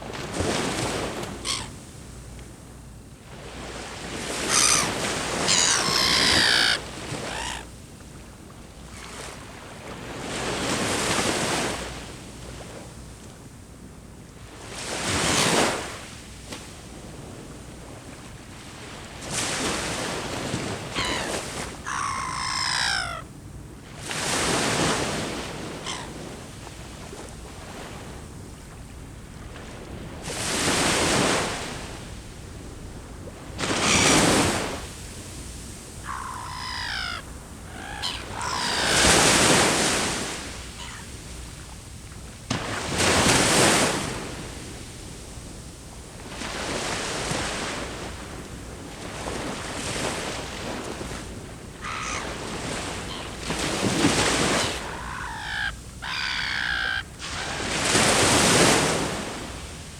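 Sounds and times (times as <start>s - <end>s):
sea waves breaking on shore: 0.0s - 13.1s, 14.4s - 59.9s
bird falling call: 4.4s - 7.6s, 21.0s - 23.3s, 36.0s - 39.6s, 51.8s - 52.4s, 54.4s - 57.7s.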